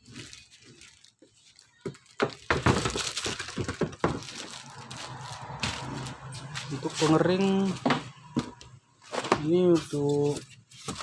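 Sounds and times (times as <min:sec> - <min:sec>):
plastic packaging crackling and knocking: 0:00.0 - 0:11.0.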